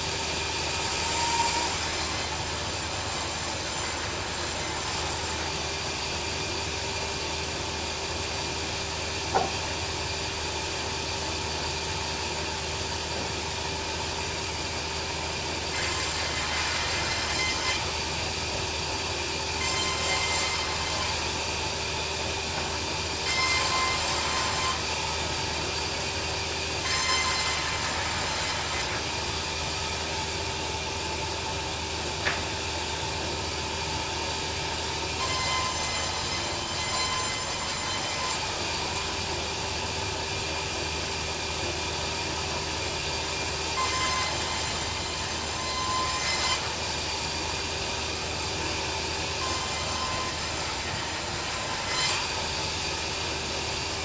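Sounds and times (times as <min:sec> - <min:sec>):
saw blade cutting timber: 0:00.0 - 0:05.8, 0:15.6 - 0:30.0, 0:35.1 - 0:39.4, 0:43.7 - 0:54.0.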